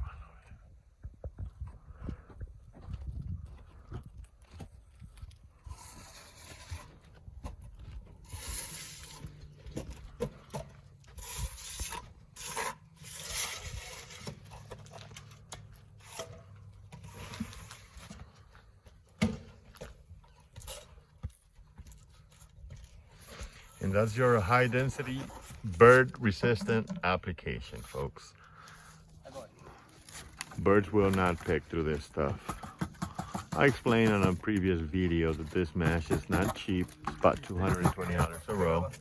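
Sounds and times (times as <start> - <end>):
scraping and rubbing: 5.6 - 10.4, 11.1 - 18.5, 22.9 - 28.2, 29.6 - 39.0.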